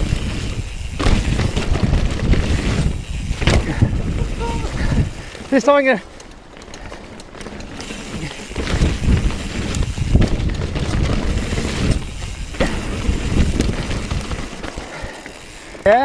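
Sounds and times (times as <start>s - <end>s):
wind rushing over microphone: 0.0s - 5.3s, 8.5s - 14.6s
bike knocks and rattles: 0.0s - 16.0s
tyres rumbling over dirt: 0.0s - 16.0s.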